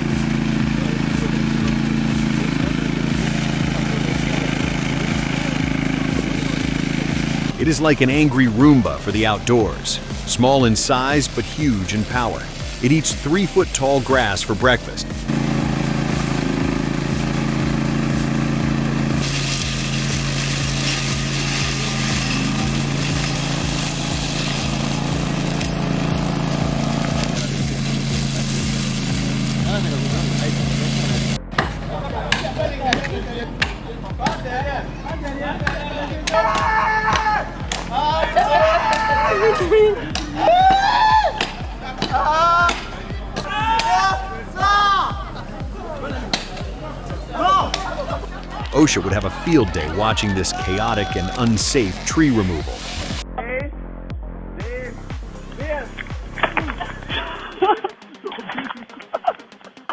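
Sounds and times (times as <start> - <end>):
mower cutting tall grass hiss: 0.0 - 7.6, 8.3 - 31.4
mower engine running: 0.0 - 31.4.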